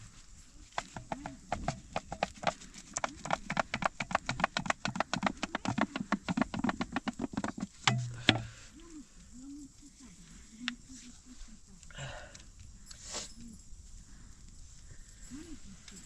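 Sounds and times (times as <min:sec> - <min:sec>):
rapid sharp tapping: 0:00.7 - 0:08.6.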